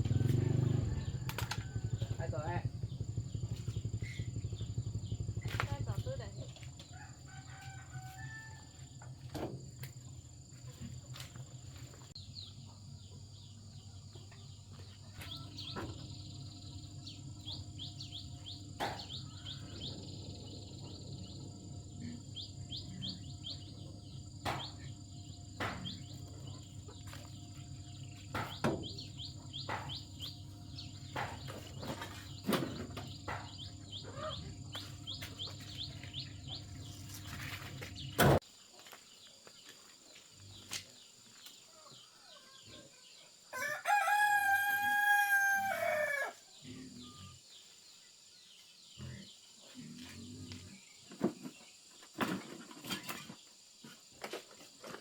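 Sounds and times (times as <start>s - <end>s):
birds chirping: 0.0s - 6.7s, 10.1s - 52.3s
steady low hum: 0.0s - 7.9s, 8.9s - 38.4s
sharp knocks: 28.3s - 30.0s.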